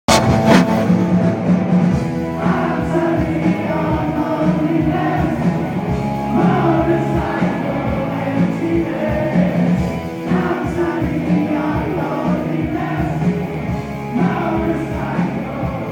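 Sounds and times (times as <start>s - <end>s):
live rock band: 0.1s - 15.9s
person singing: 2.3s - 13.5s.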